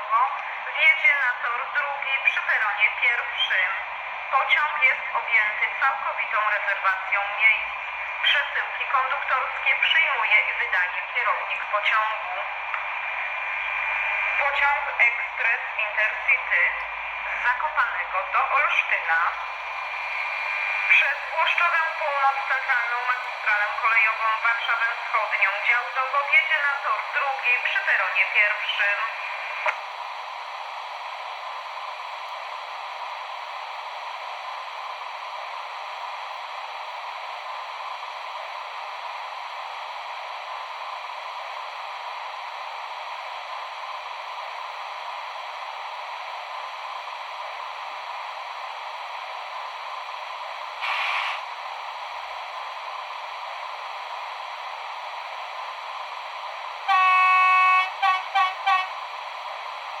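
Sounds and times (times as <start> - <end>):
locomotive horn toots: 56.9 - 58.9.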